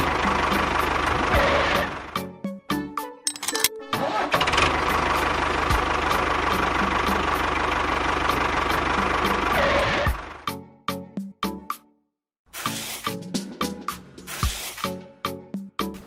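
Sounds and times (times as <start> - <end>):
engine sputtering and running: 0.0 - 2.1, 4.0 - 10.4.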